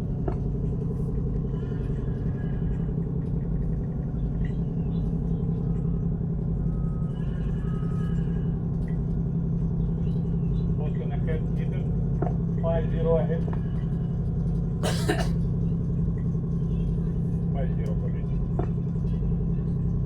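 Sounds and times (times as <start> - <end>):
ship engines rumbling: 10.7 - 19.7.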